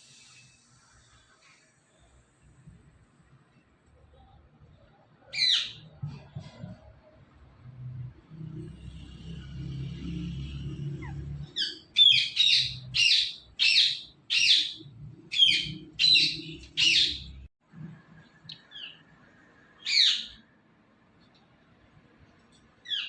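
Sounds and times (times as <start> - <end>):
parrot shrill calls: 11.1 - 17.2.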